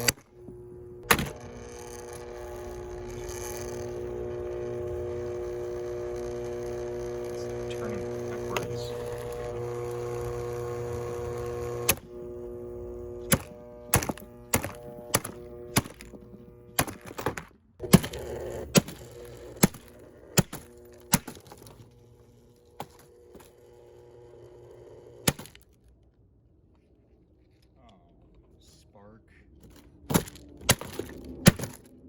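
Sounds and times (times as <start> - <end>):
fan motor humming with a buzz: 0.0 - 25.6.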